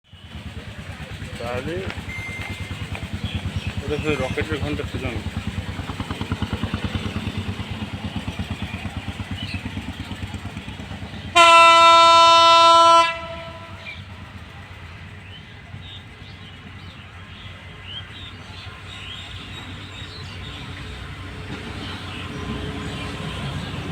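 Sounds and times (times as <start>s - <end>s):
train pulsing rumble: 0.1s - 23.9s
locomotive horn blast: 11.2s - 14.2s.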